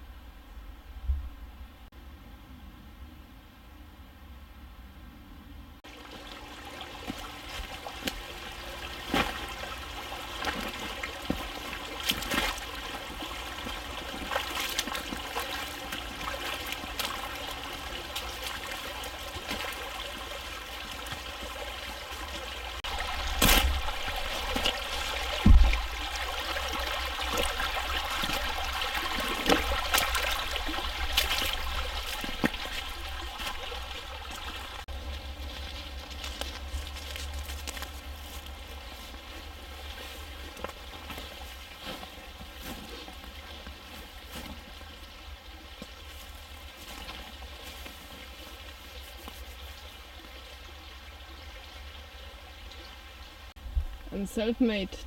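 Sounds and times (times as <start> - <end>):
creek rushing over stones: 5.8 - 54.9
footsteps and knocks: 22.8 - 26.3
low thump: 25.3 - 26.1.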